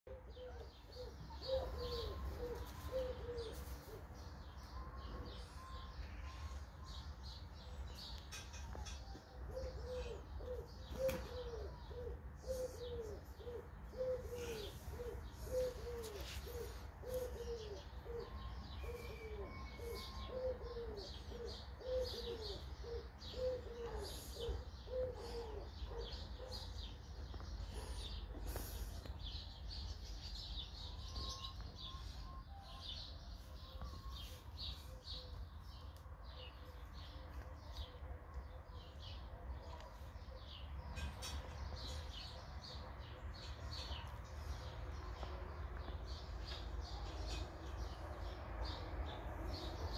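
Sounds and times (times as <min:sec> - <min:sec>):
birds chirping: 0:00.1 - 0:49.9.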